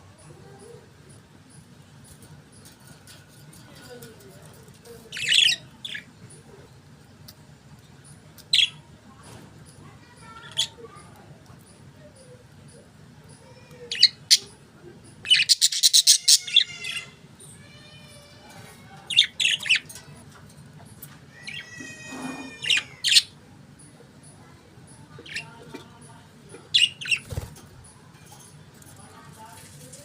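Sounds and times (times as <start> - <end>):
budgerigars chirping and warbling: 15.2 - 17.1, 19.0 - 20.1, 26.6 - 27.6.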